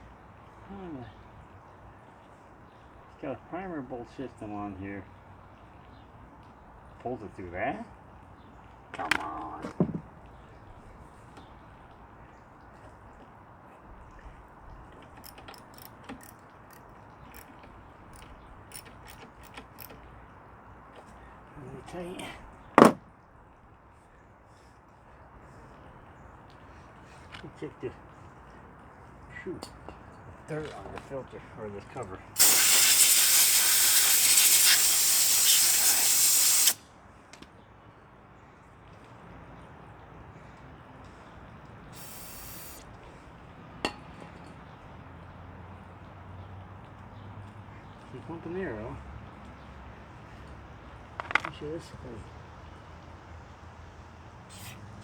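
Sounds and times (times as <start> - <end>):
pressurised spray hissing: 32.4 - 36.8, 42.0 - 42.8.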